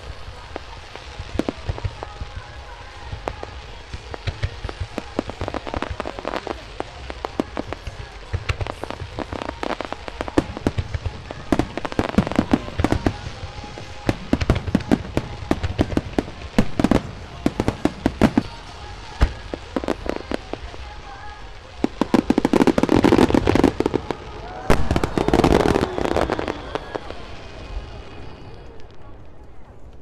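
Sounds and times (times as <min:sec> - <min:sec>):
fireworks bangs and pops: 0:00.0 - 0:30.0.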